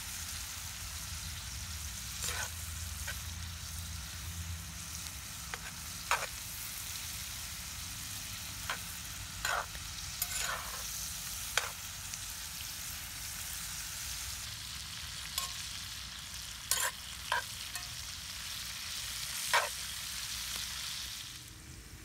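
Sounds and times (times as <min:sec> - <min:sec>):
vegetables sizzling in a skillet: 0:00.0 - 0:22.0
metal utensil scraping a pan: 0:02.2 - 0:03.2, 0:05.5 - 0:06.4, 0:08.6 - 0:11.8, 0:15.3 - 0:15.8, 0:16.7 - 0:18.0, 0:19.3 - 0:19.8.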